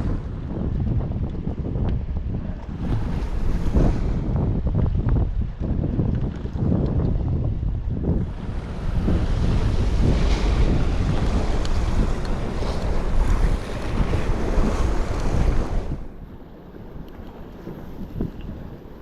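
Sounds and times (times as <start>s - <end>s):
wind buffeting microphone: 0.0s - 19.0s
sea waves washing against rocks: 2.2s - 16.4s.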